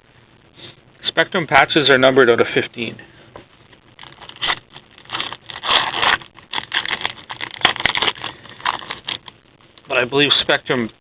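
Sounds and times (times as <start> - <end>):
cards scraping and rustling: 4.0 - 9.4.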